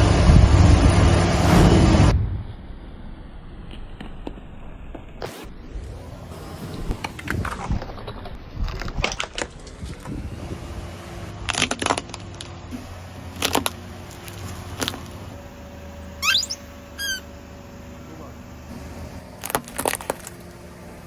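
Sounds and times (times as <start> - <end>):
food crunching under car tyre: 11.4 - 15.2, 19.3 - 20.6.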